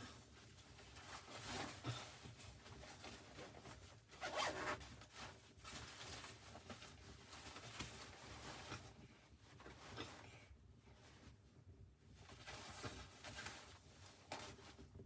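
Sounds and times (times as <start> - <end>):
zipper being pulled: 4.2 - 4.8.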